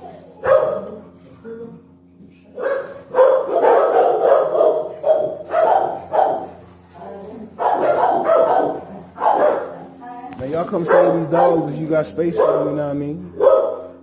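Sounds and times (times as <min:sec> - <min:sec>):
dogs barking: 0:00.0 - 0:01.2, 0:02.6 - 0:14.0.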